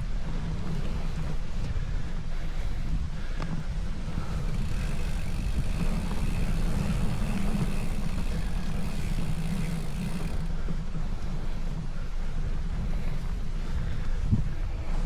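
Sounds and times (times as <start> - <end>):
wind buffeting microphone: 0.0 - 15.0
motor vehicle passing: 3.9 - 10.8.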